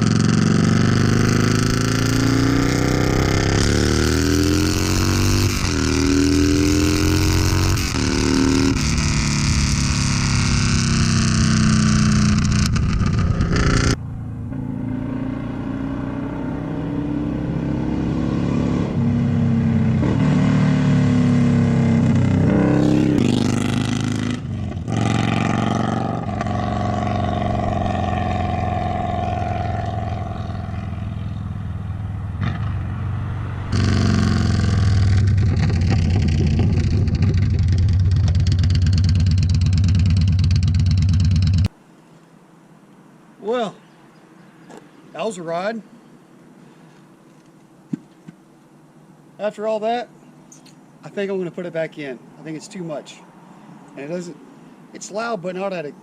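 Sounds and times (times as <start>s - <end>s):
motorcycle engine revving: 0.0s - 41.7s.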